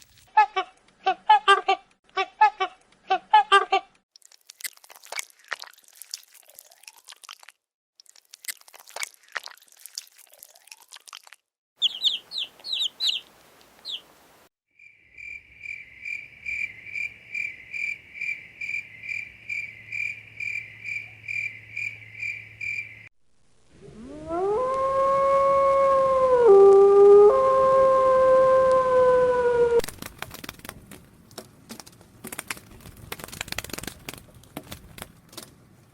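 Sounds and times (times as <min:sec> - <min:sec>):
long animal howl: 0:23.8 - 0:29.8
dry crackling clicks: 0:29.8 - 0:35.6.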